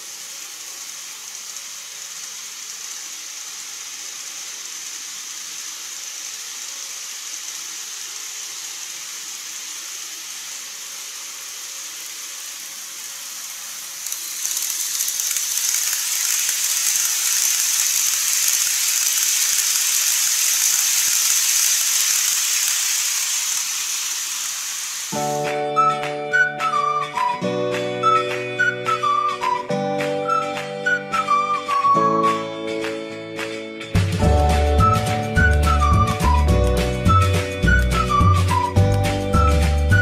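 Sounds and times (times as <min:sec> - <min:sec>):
model train motor hiss: 0:00.0 - 0:32.4, 0:34.2 - 0:40.0
music: 0:25.2 - 0:40.0.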